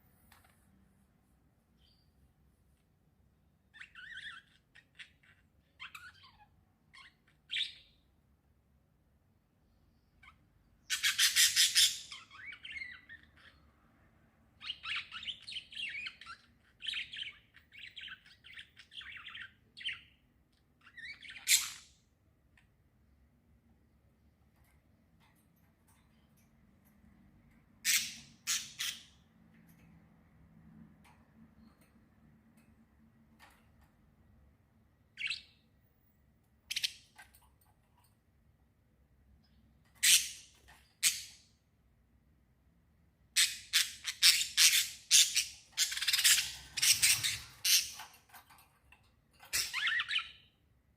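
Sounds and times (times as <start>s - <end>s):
small birds chirping: 1.5s - 8.4s, 9.4s - 50.9s
harsh bird chatter: 43.4s - 48.7s.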